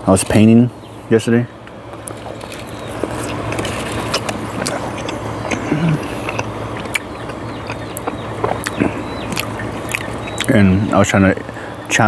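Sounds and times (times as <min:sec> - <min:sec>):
steady low hum: 0:00.0 - 0:12.0
person chewing: 0:02.0 - 0:10.6
mouth clicks: 0:02.8 - 0:10.8.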